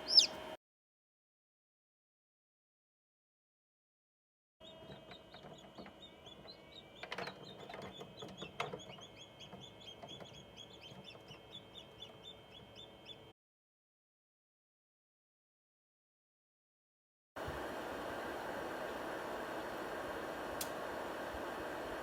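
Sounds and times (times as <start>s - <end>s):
chicks peeping: 0.0s - 0.5s, 5.2s - 13.2s
steady hum: 0.0s - 0.6s, 17.4s - 22.0s.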